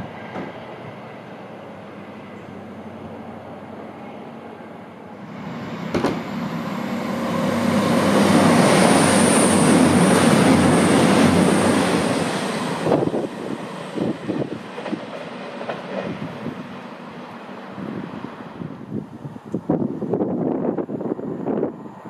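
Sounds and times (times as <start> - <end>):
train passing at speed: 0.0 - 22.0
train clacks: 5.8 - 17.4.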